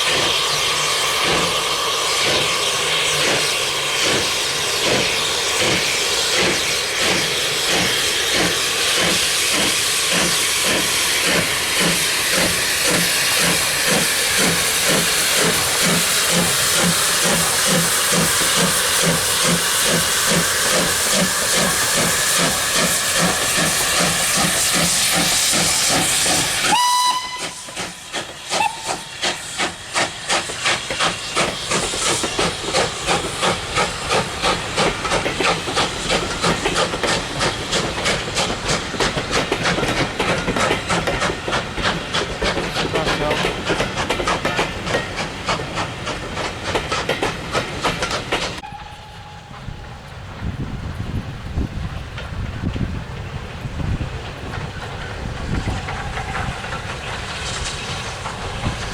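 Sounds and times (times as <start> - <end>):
locomotive exhaust beats: 0.0 - 58.9
steam hissing: 0.0 - 58.9
steam whistle: 26.4 - 29.3.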